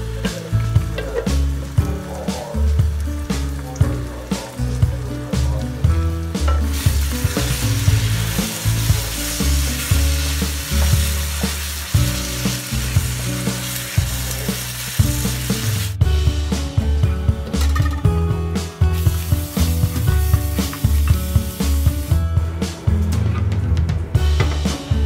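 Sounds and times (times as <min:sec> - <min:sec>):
food sizzling in a wok: 0:00.0 - 0:17.0, 0:18.5 - 0:22.2
background music with bass line: 0:00.0 - 0:25.0.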